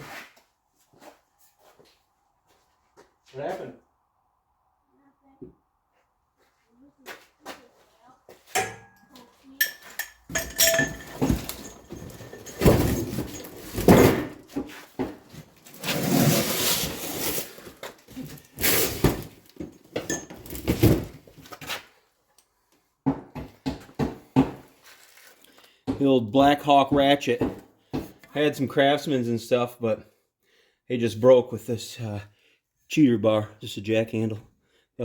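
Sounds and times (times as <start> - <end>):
metal clanks and knocks: 8.5 - 15.3.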